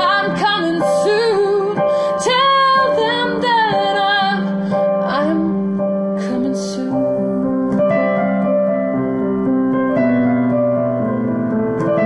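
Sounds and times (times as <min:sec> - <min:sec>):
piano playing slow chords: 0:00.0 - 0:12.0
person singing: 0:06.2 - 0:07.8.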